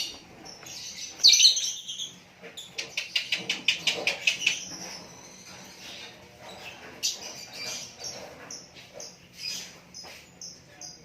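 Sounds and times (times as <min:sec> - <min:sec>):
songbird chirping: 0:00.0 - 0:03.4.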